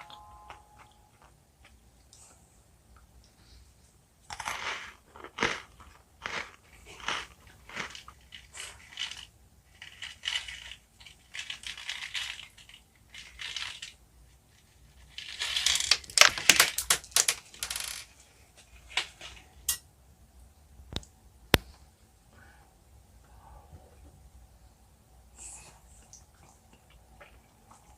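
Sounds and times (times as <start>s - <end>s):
crunchy sticky chewing: 4.6s - 13.4s.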